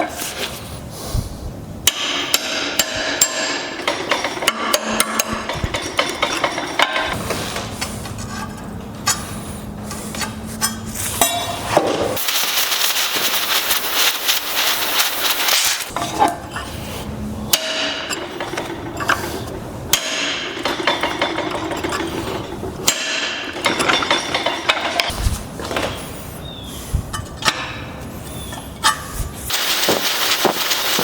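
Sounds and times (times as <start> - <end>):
hammer striking steel on anvil: 1.8 - 7.2, 10.6 - 11.9, 17.5 - 18.3, 19.9 - 21.4, 22.8 - 25.1
steady hiss: 12.2 - 15.9, 29.5 - 31.0.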